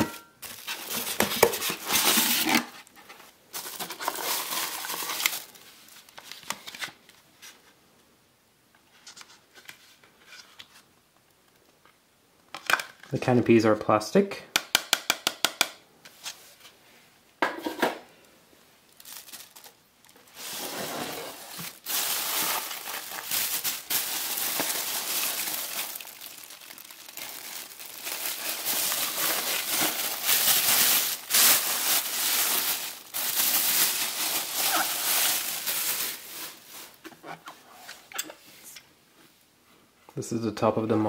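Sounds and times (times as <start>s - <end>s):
plastic packaging crinkling: 0.0s - 7.0s, 18.8s - 37.5s.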